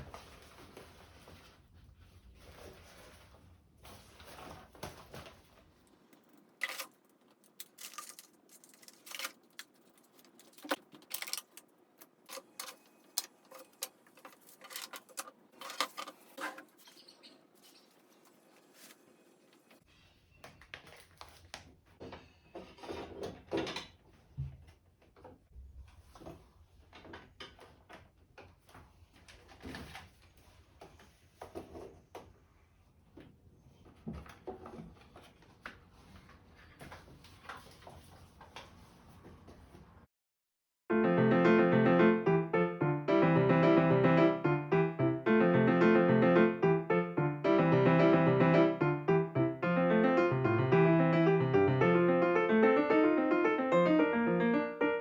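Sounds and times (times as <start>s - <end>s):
small items clicking and knocking: 6.2s - 16.6s.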